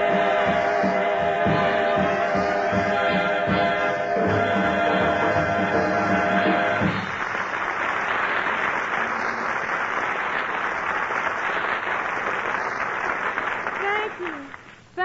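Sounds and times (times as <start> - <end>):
band music: 0.0 - 7.3
audience applauding: 0.0 - 14.8.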